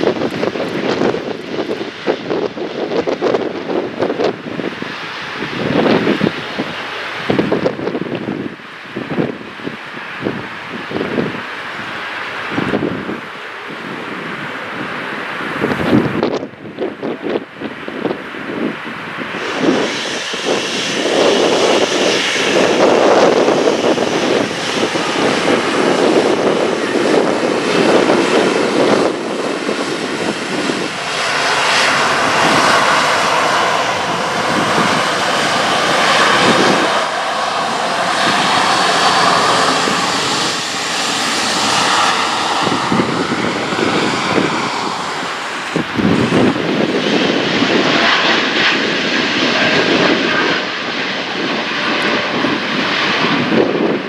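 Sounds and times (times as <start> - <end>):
jet engines running: 0.0 - 54.0
faint engine whine: 19.2 - 48.6.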